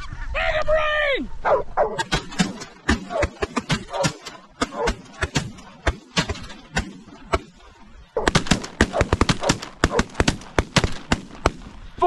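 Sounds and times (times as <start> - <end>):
geese calling: 0.0 - 12.0
shotgun blasts: 2.0 - 7.6, 8.2 - 12.0.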